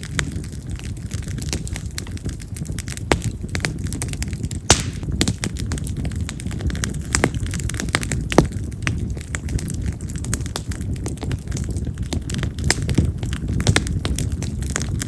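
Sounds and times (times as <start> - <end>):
firewood crackling and popping: 0.0 - 15.0
flames rumbling: 0.0 - 15.0
loud snaps: 4.7 - 5.0.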